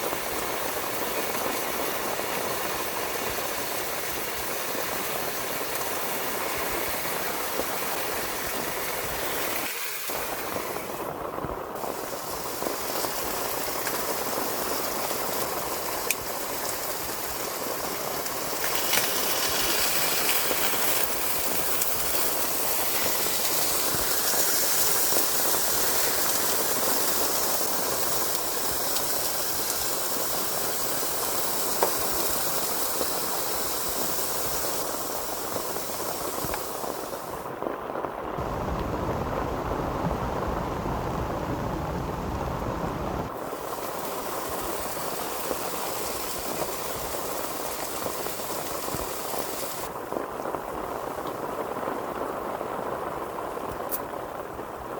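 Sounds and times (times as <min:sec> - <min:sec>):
heavy rain on a tent: 0:00.0 - 0:54.9
low rumble: 0:38.4 - 0:43.3.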